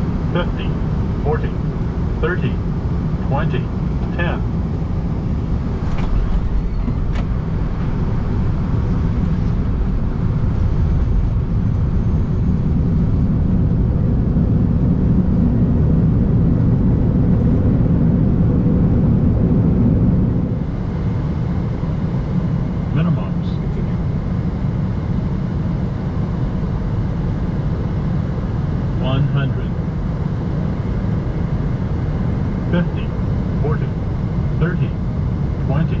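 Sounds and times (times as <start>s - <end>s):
deep roar of jet engines: 0.0s - 36.0s.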